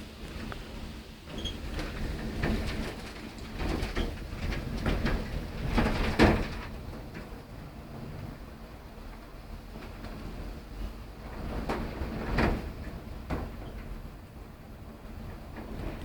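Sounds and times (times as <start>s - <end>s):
wind rumbling on microphone: 0.0s - 16.0s
knocks and rattles: 1.4s - 7.4s.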